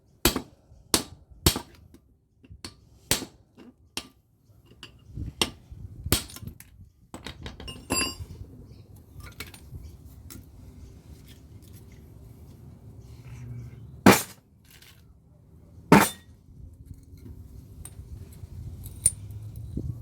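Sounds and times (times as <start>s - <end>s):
light clinks and knocks: 6.3s - 8.4s, 16.0s - 19.8s
hammer striking metal: 15.9s - 16.3s.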